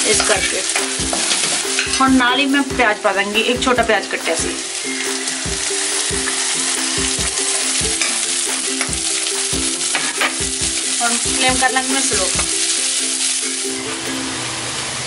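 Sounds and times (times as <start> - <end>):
onion sizzling in hot oil: 0.0 - 15.0.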